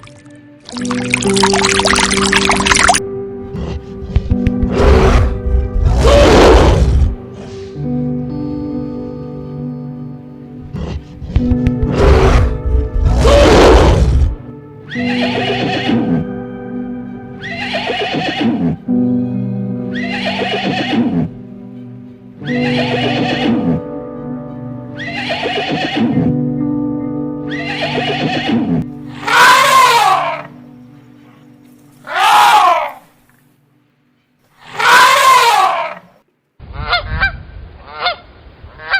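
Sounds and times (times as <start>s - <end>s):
background music with held notes: 0.0s - 34.5s
horse neighing: 14.9s - 16.3s, 17.4s - 18.8s, 19.9s - 21.4s, 22.5s - 23.9s, 25.0s - 26.4s, 27.5s - 30.5s.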